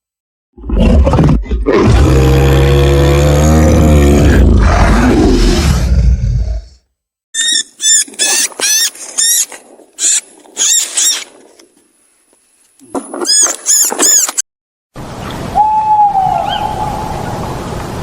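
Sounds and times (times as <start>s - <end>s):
animal roar: 0.6s - 6.8s
high-pitched squeaky animal calls: 7.4s - 11.3s, 13.2s - 14.4s.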